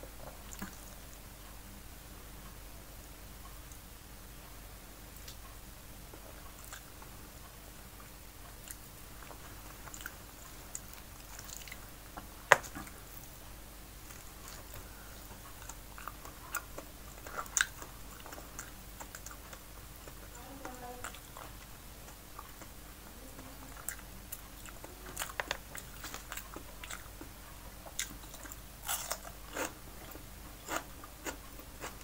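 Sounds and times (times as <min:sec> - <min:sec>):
close-up chewing: 0:08.4 - 0:13.3, 0:14.0 - 0:32.0.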